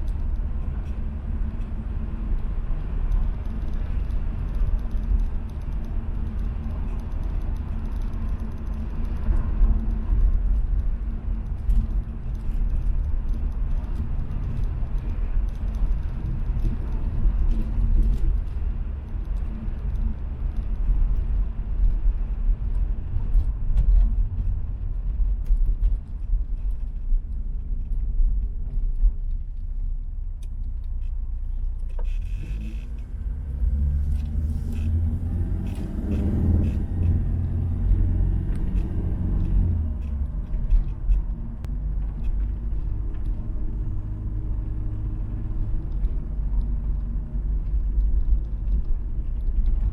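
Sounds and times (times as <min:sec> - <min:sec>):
small clicks and rattles: 0:00.0 - 0:49.9
diesel engine rumbling: 0:27.5 - 0:49.9.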